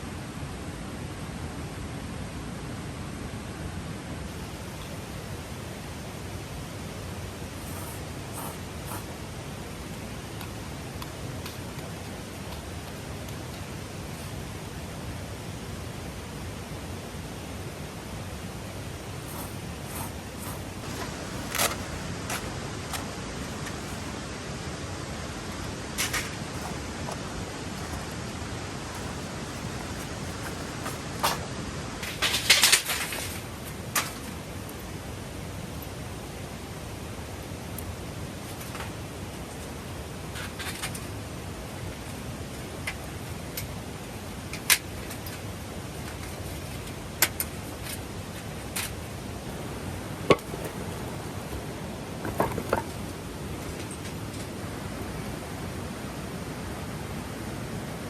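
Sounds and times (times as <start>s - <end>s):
sharp clicks and rustles: 7.6s - 9.1s, 19.2s - 24.4s, 25.2s - 32.3s, 50.3s - 53.0s
mountain stream rushing: 19.2s - 32.1s
sharp clicks and knocks: 52.2s - 52.9s.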